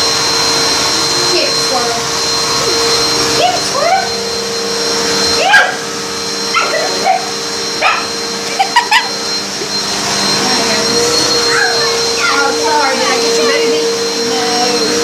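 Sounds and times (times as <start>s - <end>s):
vacuum cleaner running: 0.0s - 15.0s
dog barking and yipping: 5.4s - 9.1s, 11.4s - 12.5s.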